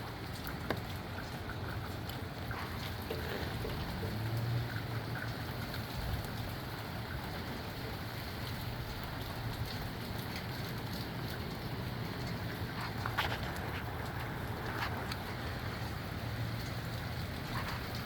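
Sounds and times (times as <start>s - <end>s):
rain falling: 0.0s - 18.0s.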